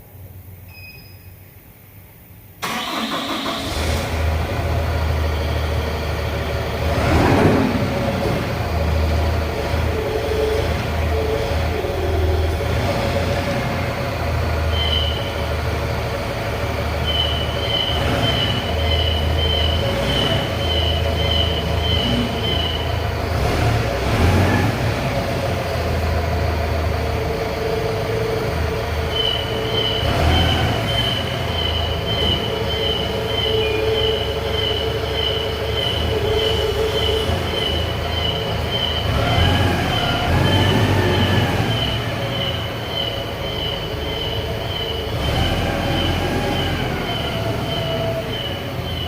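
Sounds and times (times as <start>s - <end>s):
forklift engine rumbling: 1.4s - 49.0s
high-pitched warning beeper: 17.0s - 23.1s, 27.8s - 49.0s.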